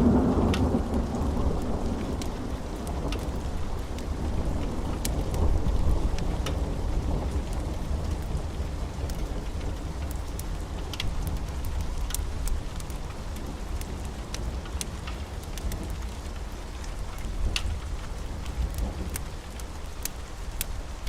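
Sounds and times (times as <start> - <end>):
rolling thunder rumble: 0.0 - 12.1
steady rain: 0.0 - 21.0.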